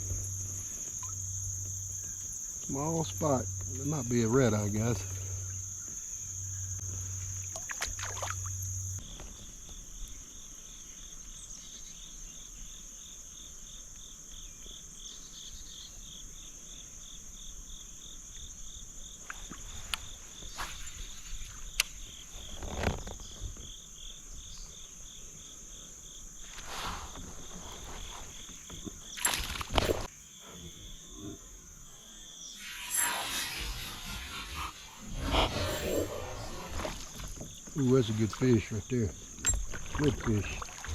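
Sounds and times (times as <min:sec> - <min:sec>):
insects buzzing and chirping: 0:00.0 - 0:40.9.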